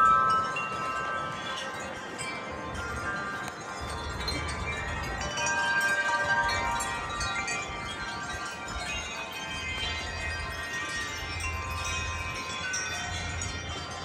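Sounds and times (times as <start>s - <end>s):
low wind rumble on microphone: 0.0s - 14.0s
wind chimes ringing: 0.0s - 14.0s.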